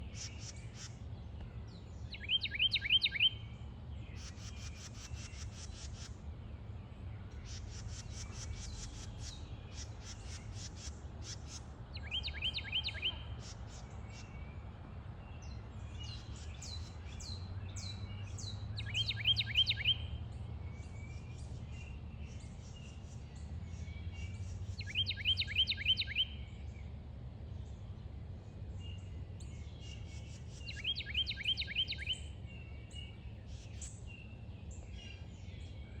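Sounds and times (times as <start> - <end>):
birds singing: 0.0 - 36.0
high bird chirps: 18.8 - 20.0.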